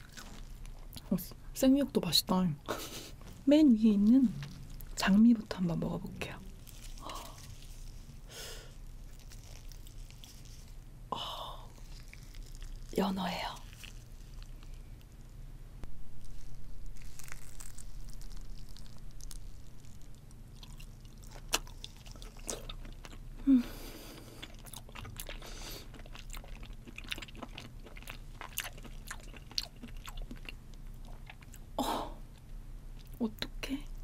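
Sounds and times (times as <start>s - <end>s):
wet chewing with mouth clicks: 0.0s - 1.3s, 6.5s - 10.8s, 11.7s - 15.2s, 16.2s - 31.7s.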